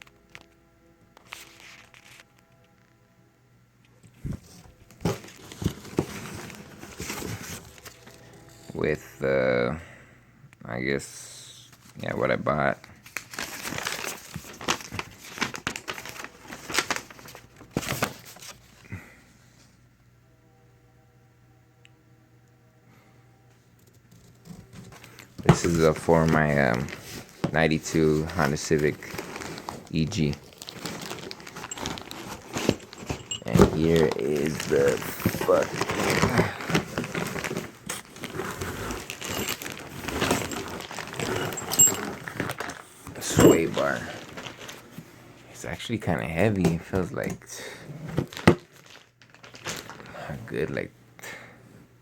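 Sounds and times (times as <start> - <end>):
packing material crinkling: 13.0 - 18.8, 24.4 - 45.0, 48.2 - 50.6.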